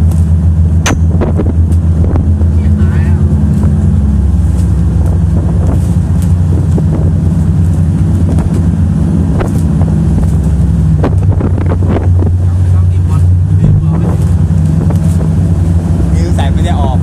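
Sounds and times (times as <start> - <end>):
motorboat engine running: 0.0 - 17.0
wind buffeting microphone: 0.6 - 17.0.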